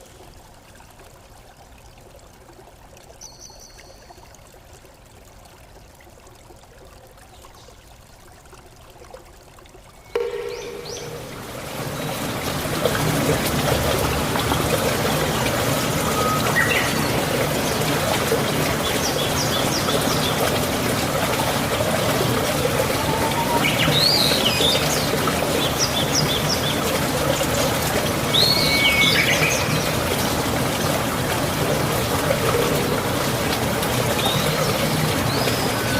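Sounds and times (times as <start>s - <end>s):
stream water running: 0.0s - 35.9s
birds chirping: 10.0s - 12.7s, 15.0s - 20.7s, 22.9s - 27.0s.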